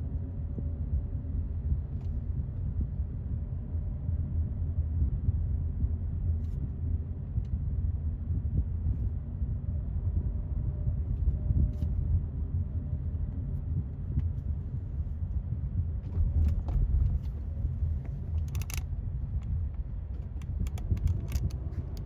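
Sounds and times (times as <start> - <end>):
low outdoor rumble: 0.0 - 22.0
light clicks and ticks: 16.4 - 22.0.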